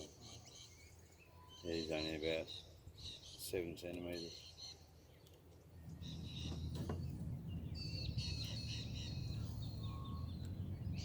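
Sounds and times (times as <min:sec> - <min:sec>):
birds chirping and trilling: 0:00.0 - 0:11.0
low steady rumble: 0:05.7 - 0:11.0.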